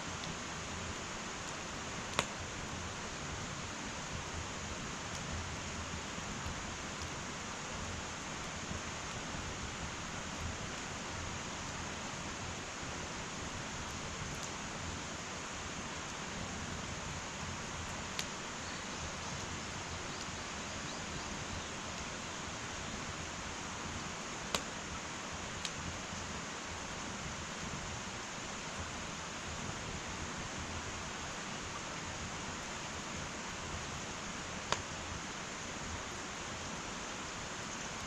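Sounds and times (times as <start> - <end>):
wood fire hissing: 0.0 - 38.0
burning wood crackling pops: 0.1 - 4.3, 4.9 - 7.3, 13.2 - 14.9, 16.1 - 23.2, 23.8 - 26.4, 34.5 - 35.2.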